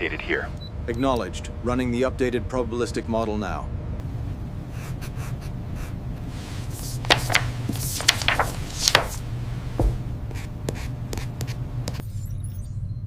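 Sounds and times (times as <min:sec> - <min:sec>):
scraping and rubbing: 0:06.3 - 0:12.0.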